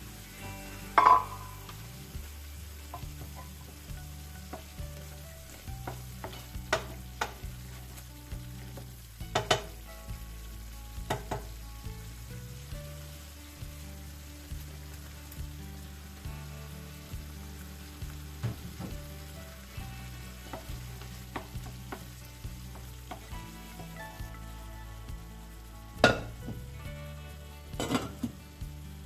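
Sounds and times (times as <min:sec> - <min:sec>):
sauce sizzling: 0:00.0 - 0:29.0
wooden spoon knocking against pan: 0:01.0 - 0:01.4, 0:05.8 - 0:07.5, 0:08.8 - 0:09.8, 0:11.1 - 0:11.5.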